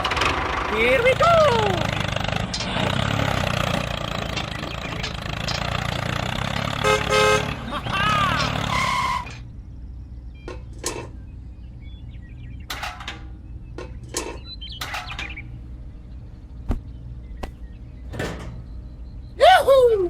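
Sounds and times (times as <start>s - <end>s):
low mechanical hum: 0.0s - 20.0s
sharp clicks and knocks: 12.7s - 15.4s, 16.7s - 18.8s.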